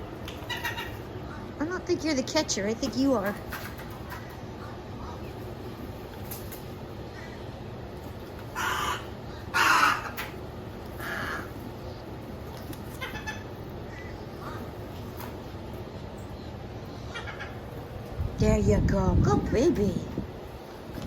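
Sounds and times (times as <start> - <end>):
bird harsh calls: 0.4 - 1.5, 8.5 - 12.2, 12.8 - 15.0, 16.3 - 17.9.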